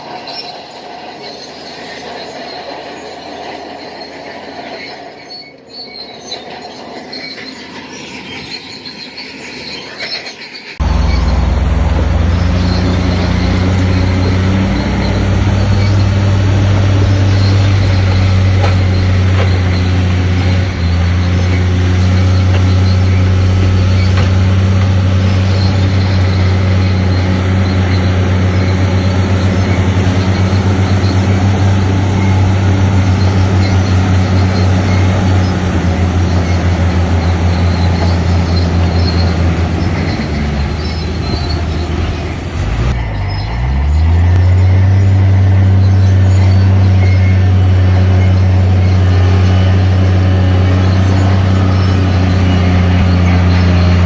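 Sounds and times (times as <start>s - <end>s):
heavy diesel engine droning: 10.8s - 54.0s.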